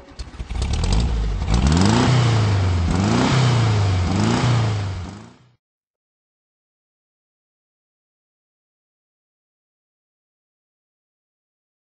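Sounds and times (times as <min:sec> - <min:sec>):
car engine revving: 0:00.1 - 0:05.6.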